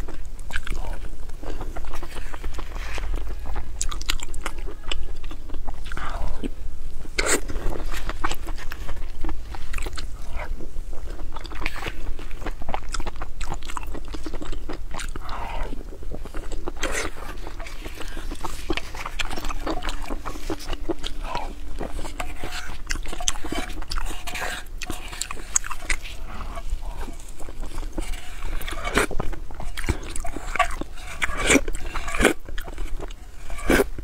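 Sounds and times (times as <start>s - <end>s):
chewing and wet mouth sounds: 0.0s - 34.0s
wooden spoon in metal bowl: 16.3s - 34.0s.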